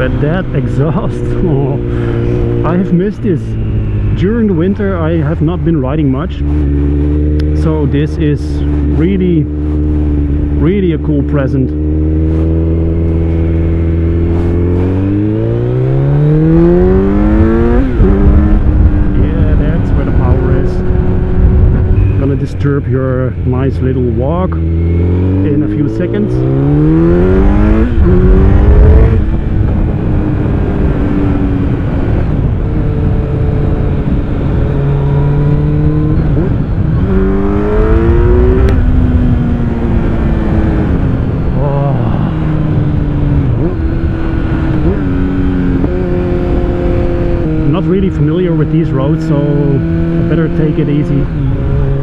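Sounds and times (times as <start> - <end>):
motorcycle engine revving: 0.0 - 52.0
wind rumble on microphone: 11.8 - 52.0.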